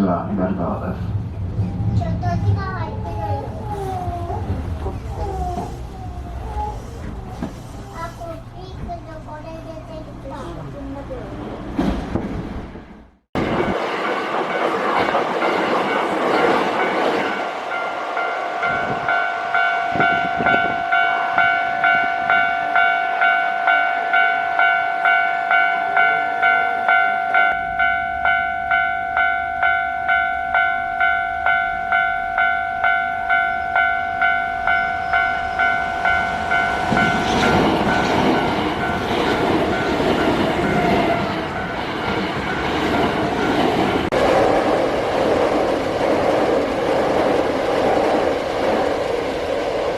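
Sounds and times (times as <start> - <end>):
electric train running over rails: 0.0 - 49.9
level-crossing warning bell: 13.4 - 43.9.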